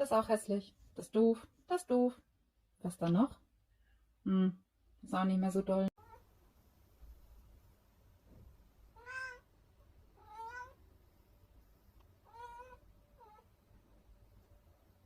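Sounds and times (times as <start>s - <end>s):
cat meowing: 8.9s - 9.5s, 10.2s - 10.8s, 12.2s - 13.5s.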